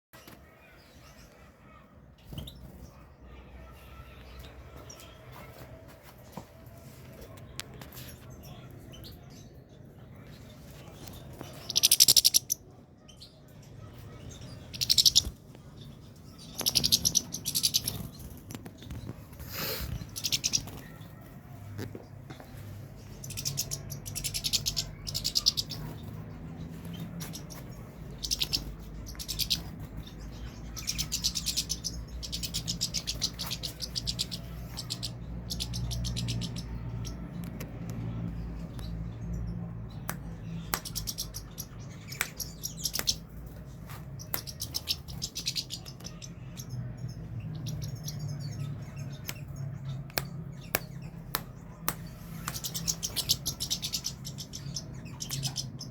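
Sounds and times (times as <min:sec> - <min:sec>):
finch twittering song: 0:10.7 - 0:13.2, 0:13.9 - 0:55.9.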